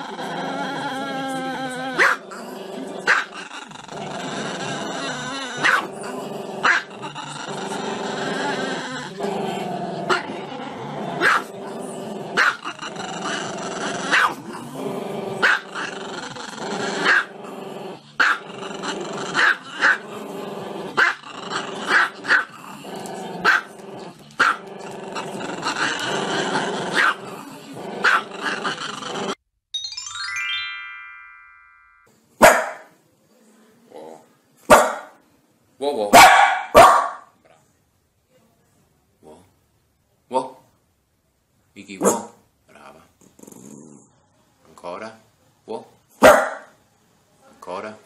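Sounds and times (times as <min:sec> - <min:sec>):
small dog barking: 0:02.0 - 0:02.2, 0:03.1 - 0:03.3, 0:05.6 - 0:05.9, 0:06.6 - 0:06.9, 0:11.2 - 0:11.5, 0:12.4 - 0:12.6, 0:14.1 - 0:14.4, 0:15.4 - 0:15.6, 0:21.0 - 0:21.2, 0:21.9 - 0:22.5, 0:23.4 - 0:23.7, 0:27.0 - 0:27.2, 0:28.0 - 0:28.3, 0:32.4 - 0:32.9, 0:34.7 - 0:35.2, 0:36.1 - 0:37.4, 0:42.0 - 0:42.4, 0:46.2 - 0:46.8.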